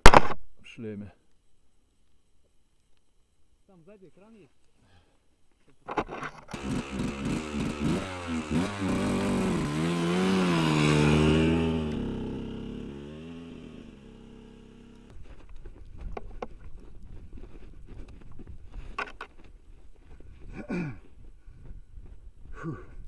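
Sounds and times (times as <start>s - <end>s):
vehicle engine revving: 6.5s - 15.1s.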